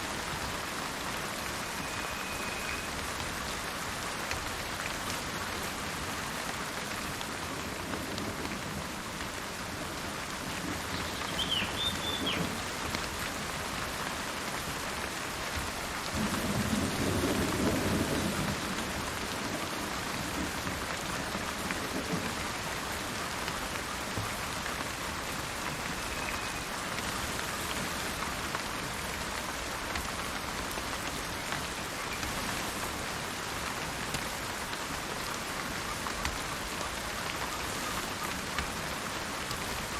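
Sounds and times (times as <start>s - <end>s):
steady rain in forest: 0.0s - 39.9s
bird chirp: 11.0s - 12.5s.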